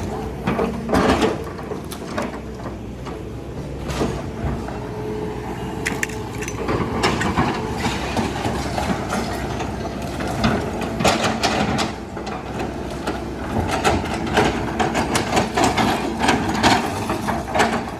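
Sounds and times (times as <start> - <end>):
excavator diesel engine: 0.0 - 17.9
house being demolished: 5.8 - 17.9.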